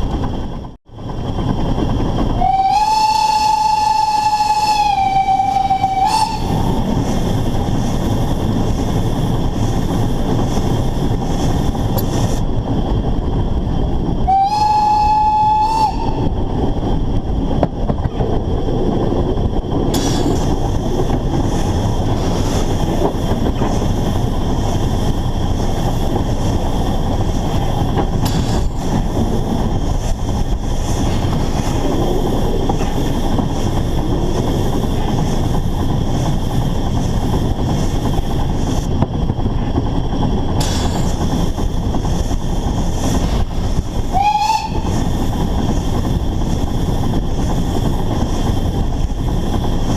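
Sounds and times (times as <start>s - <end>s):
steam locomotive running: 0.0s - 49.9s
steam whistle blast: 2.4s - 6.6s, 14.3s - 16.3s, 44.1s - 44.9s.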